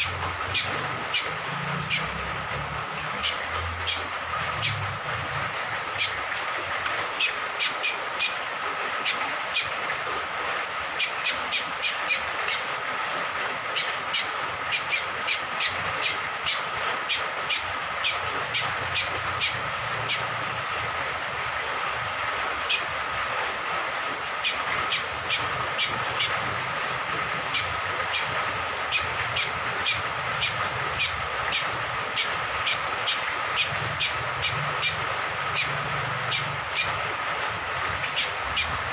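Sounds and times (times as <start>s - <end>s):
rain falling: 0.0s - 38.9s
honeyeater calling in sharp notes: 13.8s - 20.3s.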